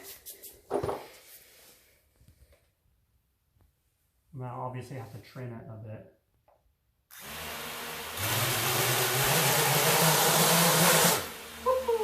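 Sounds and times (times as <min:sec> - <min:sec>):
quadcopter motors whirring: 0:08.2 - 0:12.0.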